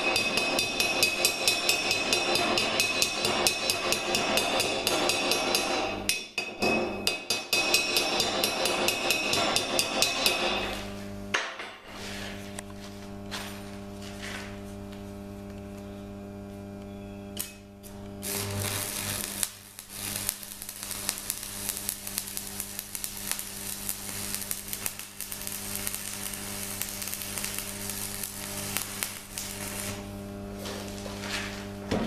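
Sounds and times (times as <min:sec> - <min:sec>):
electrical hum: 0:09.4 - 0:32.0
gas torch crackling and hissing: 0:17.3 - 0:31.9.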